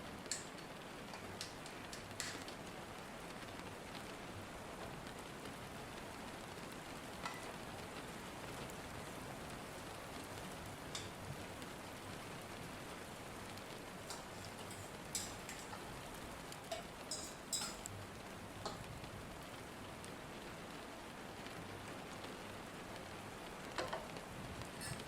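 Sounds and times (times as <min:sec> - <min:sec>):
steady rain hiss: 0:00.0 - 0:25.0
sharp drips: 0:14.0 - 0:18.0.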